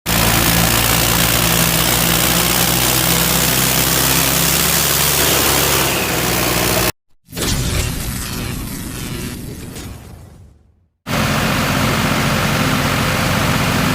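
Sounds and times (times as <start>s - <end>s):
tractor engine running: 0.1s - 7.0s, 11.1s - 13.9s.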